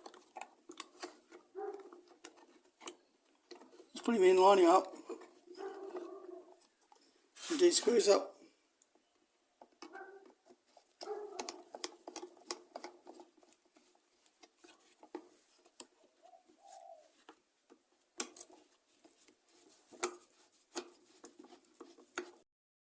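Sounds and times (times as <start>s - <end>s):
screwdriver clicks and taps: 9.6s - 15.9s, 17.2s - 19.2s, 19.9s - 22.4s.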